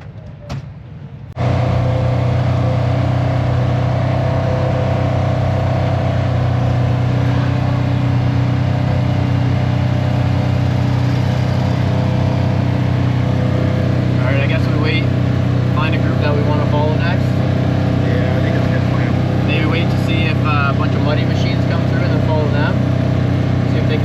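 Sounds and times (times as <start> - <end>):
off-road vehicle engine running: 1.4 - 24.0.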